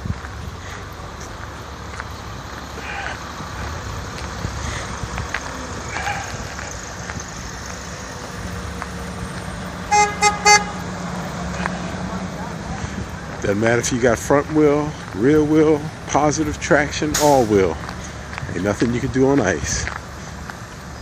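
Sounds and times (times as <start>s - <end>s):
low rumble of vehicles: 0.0s - 21.0s
car horn honks: 9.9s - 10.9s.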